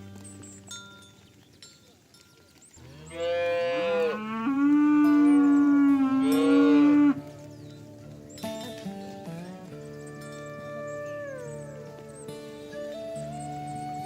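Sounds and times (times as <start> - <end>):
cow mooing: 2.8 - 7.3.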